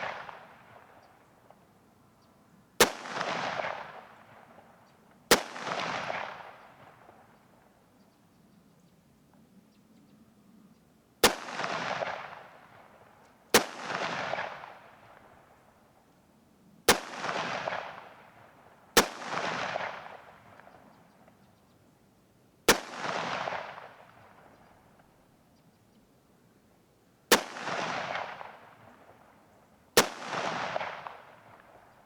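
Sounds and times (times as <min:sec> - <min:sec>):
rifle shots with echo: 0:00.0 - 0:01.6, 0:02.8 - 0:07.4, 0:11.2 - 0:15.4, 0:16.9 - 0:20.9, 0:22.7 - 0:24.6, 0:27.3 - 0:32.0.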